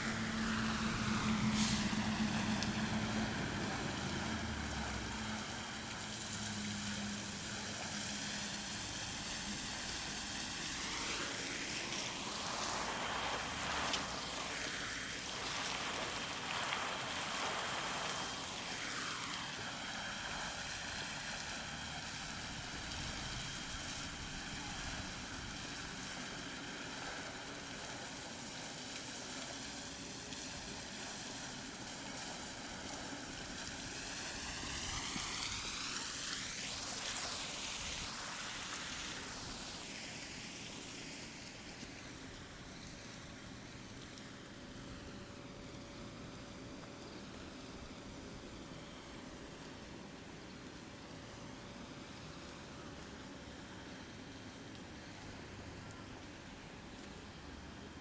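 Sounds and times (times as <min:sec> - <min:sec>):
vehicle engine: 0:00.0 - 0:25.1
car passing by: 0:00.0 - 0:28.1, 0:28.8 - 0:42.1
steady traffic hiss: 0:00.0 - 0:58.0.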